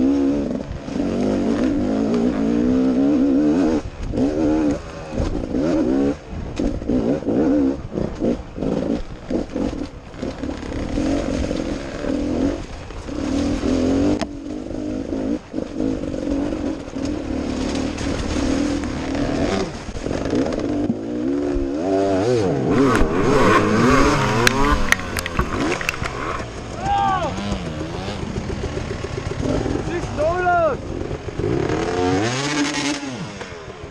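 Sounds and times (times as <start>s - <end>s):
dirt bike engine revving: 0.0s - 33.9s
bike knocking and rattling: 8.0s - 19.2s, 22.7s - 31.6s.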